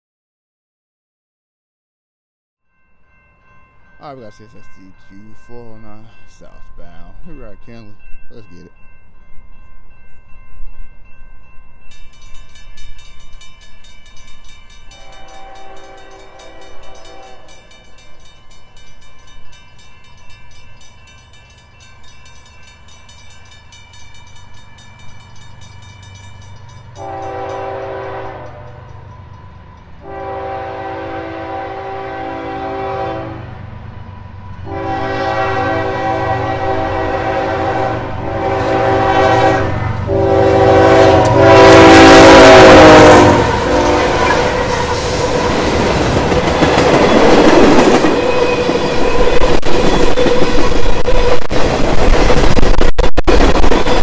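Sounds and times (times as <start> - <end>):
crossing bell ringing: 2.6 - 51.3
diesel locomotives roaring past: 3.2 - 54.0
locomotive air horn blasts: 15.0 - 17.6, 27.0 - 28.8, 30.0 - 33.6, 34.7 - 45.0.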